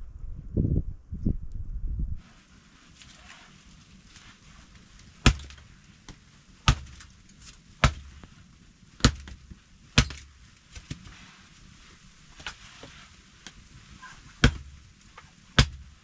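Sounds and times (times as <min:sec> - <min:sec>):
axe chopping wood: 0:05.2 - 0:07.2, 0:07.8 - 0:08.3, 0:09.0 - 0:11.1, 0:14.3 - 0:16.0.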